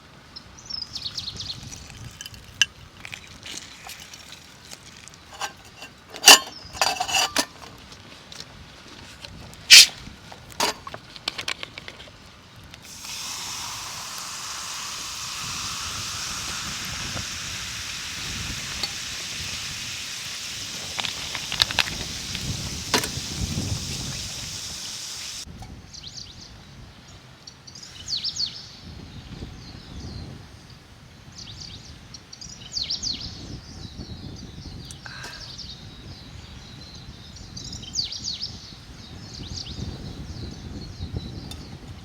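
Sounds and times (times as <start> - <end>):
cookware clinking: 5.3 - 7.7
steady hiss: 9.7 - 10.0, 12.8 - 25.5.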